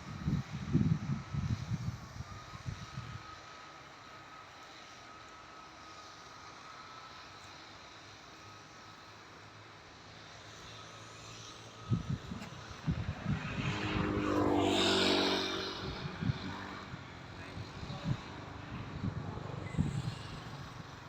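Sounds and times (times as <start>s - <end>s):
vehicle passing by: 10.7s - 21.0s.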